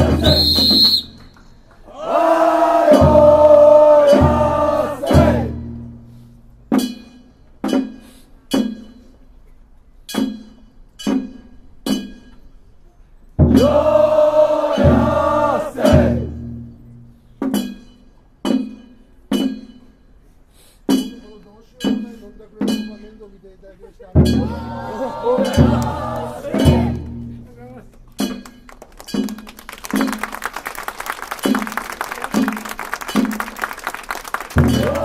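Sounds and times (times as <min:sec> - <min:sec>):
group of voices singing: 0:01.9 - 0:05.6, 0:13.5 - 0:16.4, 0:24.4 - 0:27.0, 0:34.6 - 0:35.0.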